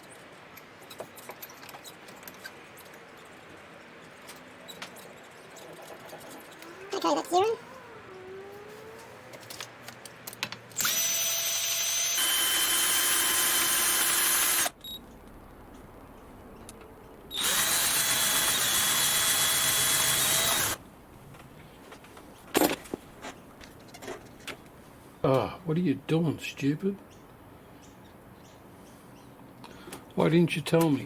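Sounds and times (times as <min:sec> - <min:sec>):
power tool motor whining: 0:10.8 - 0:14.8, 0:17.3 - 0:20.8.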